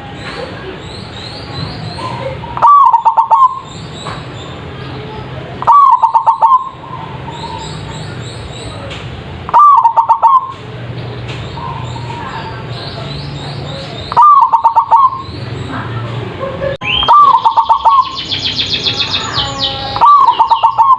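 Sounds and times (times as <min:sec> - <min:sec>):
small birds chirping: 0:00.0 - 0:20.9
dove cooing: 0:02.0 - 0:03.7, 0:05.6 - 0:08.2, 0:09.5 - 0:10.6, 0:14.0 - 0:15.3, 0:16.4 - 0:18.2, 0:19.5 - 0:20.9.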